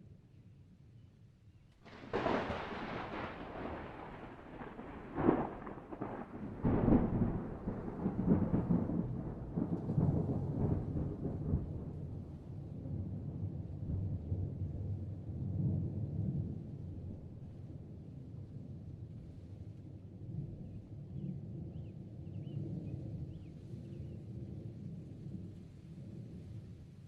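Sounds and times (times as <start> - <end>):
thunder crack and rumble: 1.8 - 18.5.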